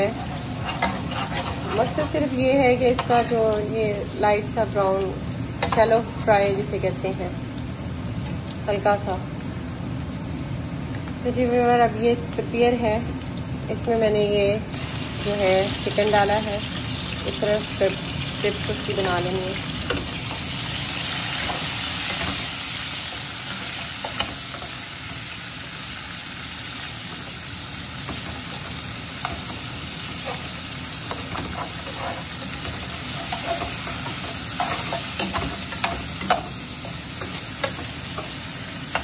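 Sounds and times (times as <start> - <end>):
food sizzling in oil: 0.0 - 39.0
spatula scraping and tapping pan: 0.1 - 2.2, 31.1 - 39.0.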